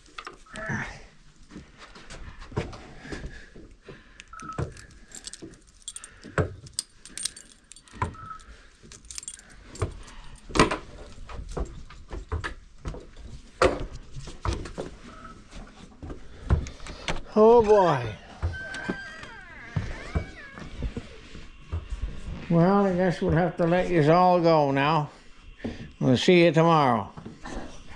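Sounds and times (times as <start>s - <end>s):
small hard objects clinking: 4.4s - 10.6s.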